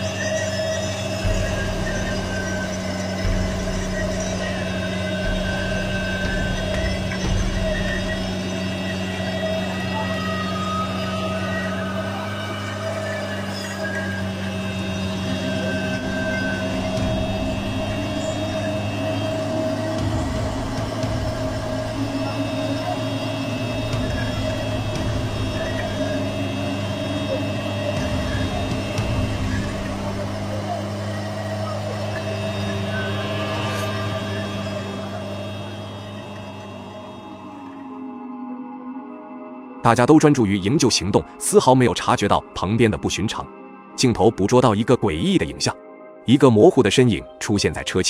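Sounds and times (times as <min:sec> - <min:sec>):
off-road vehicle engine running: 0:00.0 - 0:37.9.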